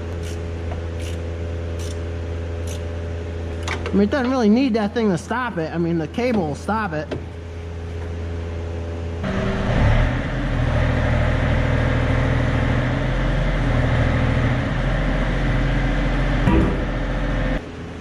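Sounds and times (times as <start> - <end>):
excavator diesel engine: 9.2 - 17.7.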